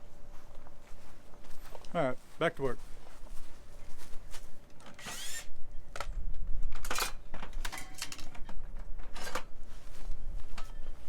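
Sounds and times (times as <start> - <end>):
tools and building pieces clinking: 6.8 - 8.5.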